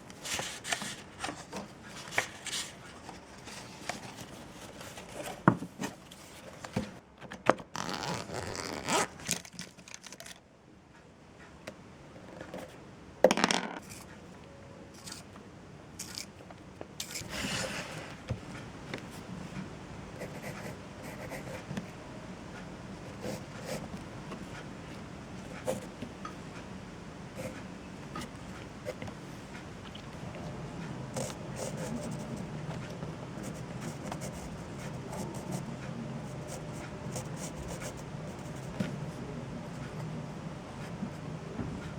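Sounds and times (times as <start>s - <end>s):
objects scraping on a surface: 17.0s - 18.2s.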